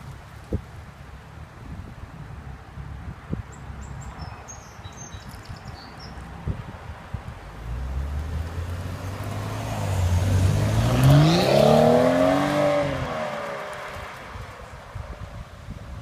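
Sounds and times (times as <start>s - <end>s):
car engine revving: 7.6s - 14.2s.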